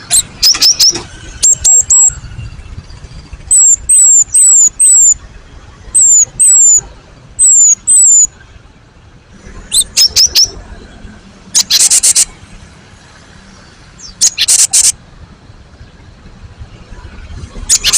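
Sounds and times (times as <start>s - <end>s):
bird singing whistled notes: 0.0s - 5.2s, 5.9s - 8.4s, 9.6s - 10.9s, 11.6s - 12.3s, 14.0s - 15.0s, 17.6s - 17.9s.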